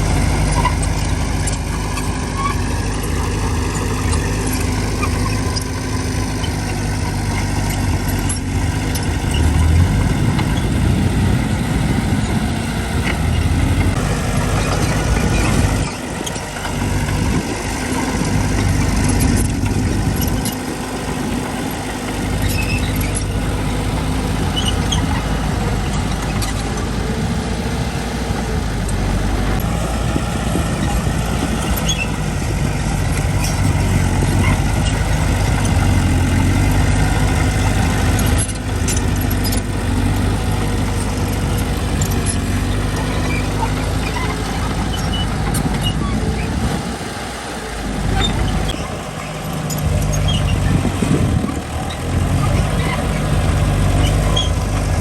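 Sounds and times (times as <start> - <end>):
diesel engines running: 0.0 - 55.0
light metallic squeaks and clinks: 0.3 - 10.7, 21.8 - 23.8, 24.4 - 25.3, 25.9 - 26.9, 30.8 - 46.5, 48.1 - 55.0.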